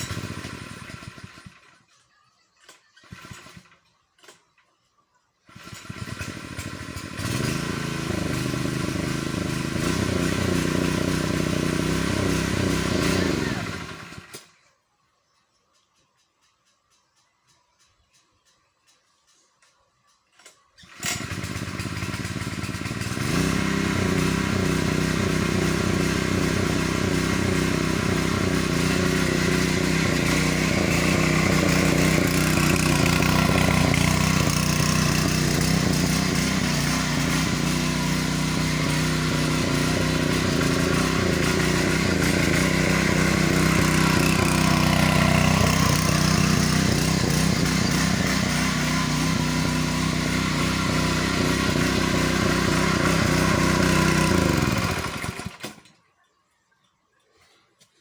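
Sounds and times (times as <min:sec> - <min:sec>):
small engine running: 0:00.0 - 0:04.5, 0:05.4 - 0:14.6, 0:20.4 - 0:56.0.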